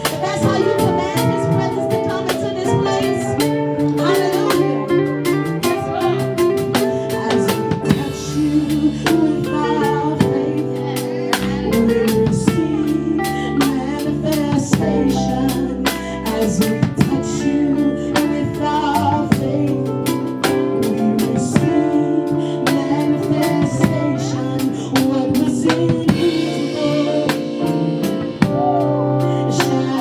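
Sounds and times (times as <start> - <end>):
drum kit beat: 0.0 - 30.0
live gospel band music: 0.0 - 30.0
person singing: 0.0 - 30.0.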